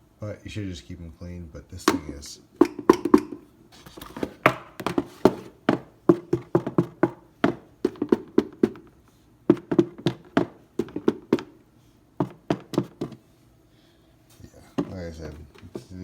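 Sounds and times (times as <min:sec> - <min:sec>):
taps on hollow plastic shell: 0:01.8 - 0:03.5.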